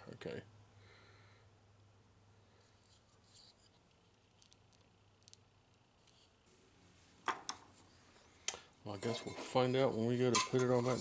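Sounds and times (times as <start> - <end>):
small parts clicking and tapping: 2.8 - 6.3.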